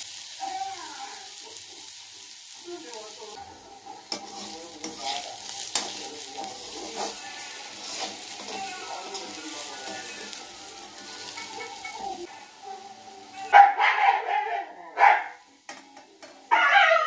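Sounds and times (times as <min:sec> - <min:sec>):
potatoes sizzling in oil: 0:00.0 - 0:17.0
metal spatula scraping pan: 0:04.1 - 0:12.2.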